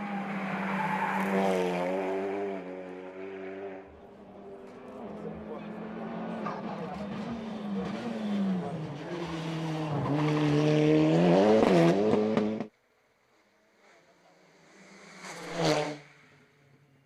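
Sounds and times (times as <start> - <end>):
race car engine revving: 0.0 - 12.7
race car passing by: 13.9 - 17.0.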